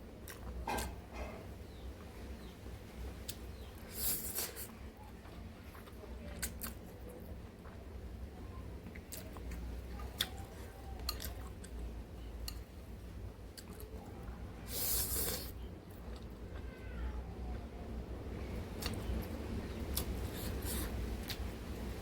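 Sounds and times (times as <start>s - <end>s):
chewing noodles: 0.2s - 16.7s, 18.2s - 22.0s.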